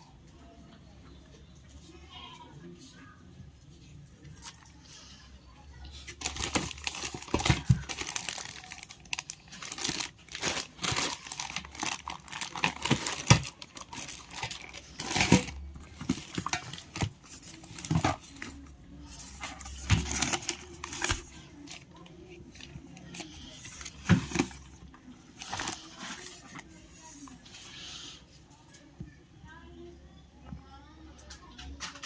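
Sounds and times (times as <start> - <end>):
packaging crinkling and crackling: 6.1 - 27.4.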